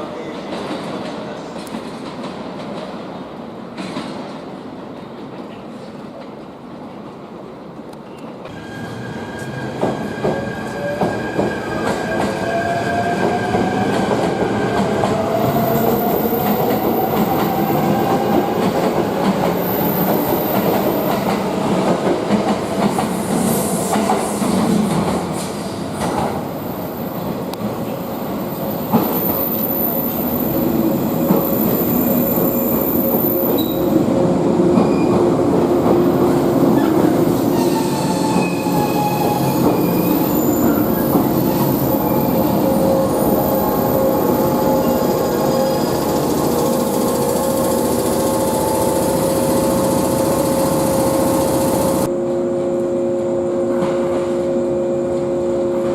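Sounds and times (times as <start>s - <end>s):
train running noise: 28.8s - 55.9s.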